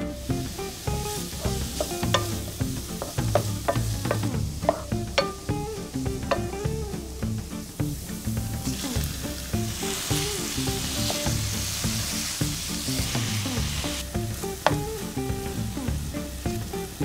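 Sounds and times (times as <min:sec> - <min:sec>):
meat sizzling in hot oil: 0:00.0 - 0:17.0
soft background music: 0:00.0 - 0:17.0
wooden spatula stirring: 0:00.4 - 0:05.5.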